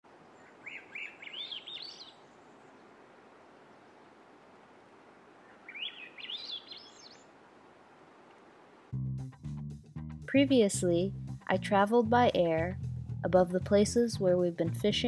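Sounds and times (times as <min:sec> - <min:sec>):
faint outdoor hiss: 0:00.0 - 0:09.0, 0:10.3 - 0:15.0
songbird singing: 0:00.1 - 0:04.4, 0:05.3 - 0:07.4.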